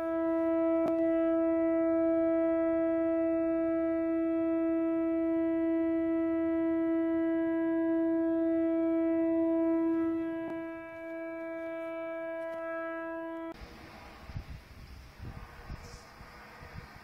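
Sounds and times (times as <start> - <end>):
steady horn-like tone: 0.0 - 17.0.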